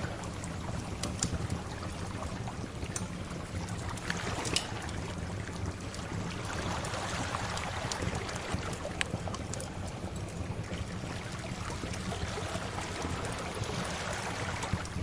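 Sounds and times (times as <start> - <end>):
wood fire crackling: 0.0 - 15.0
sea waves washing: 6.1 - 10.0, 11.0 - 15.0.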